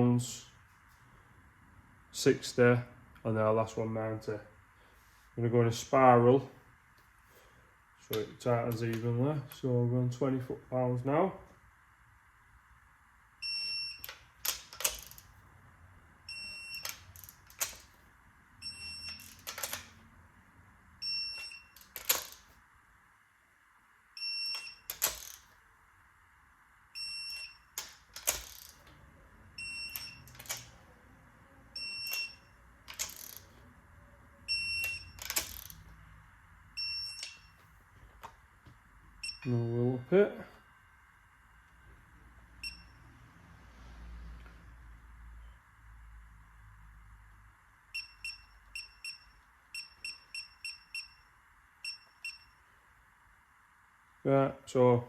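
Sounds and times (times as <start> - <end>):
electronic torque wrench beeping: 13.4 - 15.3, 16.2 - 18.0, 18.6 - 20.0, 21.0 - 22.5, 24.2 - 25.5, 26.9 - 30.8, 31.7 - 33.6, 34.4 - 36.0, 36.7 - 37.6, 39.2 - 40.7, 42.5 - 43.3, 47.9 - 52.6
wrench and socket clacking: 14.0 - 15.3, 27.8 - 28.9, 29.9 - 30.8, 32.1 - 33.5, 34.8 - 35.8.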